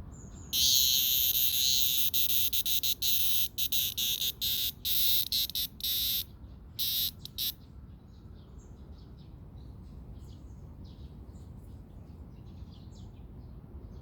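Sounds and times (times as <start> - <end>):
cicada buzzing in bursts: 0.5 - 7.6.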